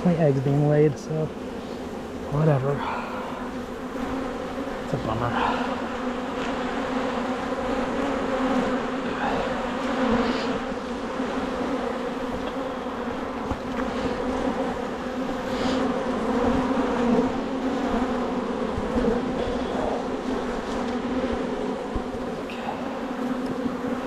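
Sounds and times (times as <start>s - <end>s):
honeybees buzzing: 0.0s - 24.0s.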